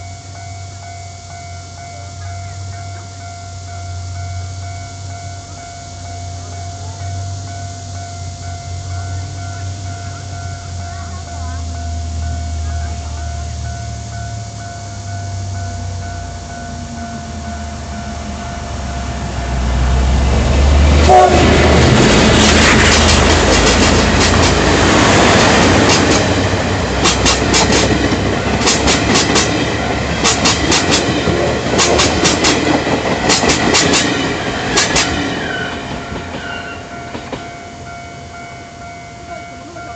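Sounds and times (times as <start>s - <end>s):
train rumble: 0.0s - 39.9s
train wheels clacking over rail joints: 20.9s - 37.6s.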